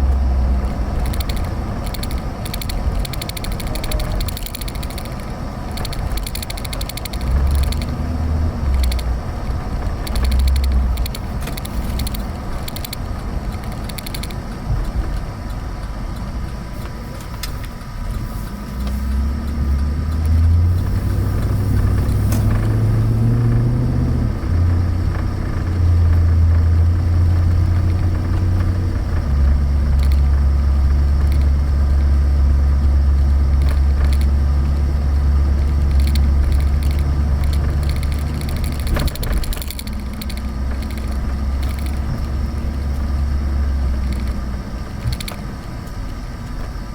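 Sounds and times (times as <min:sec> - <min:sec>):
car engine droning: 0:00.0 - 0:46.9.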